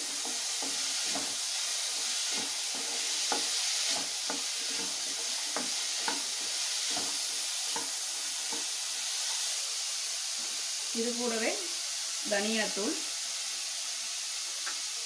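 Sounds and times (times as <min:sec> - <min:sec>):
spatula scraping and tapping pan: 0:00.0 - 0:08.7
food sizzling in oil: 0:00.0 - 0:15.0.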